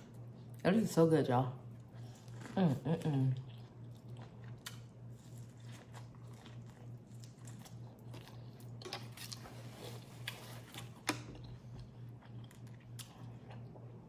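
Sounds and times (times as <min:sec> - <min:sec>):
steady low hum: 0:00.0 - 0:14.0
person chewing with crunches: 0:01.6 - 0:14.0.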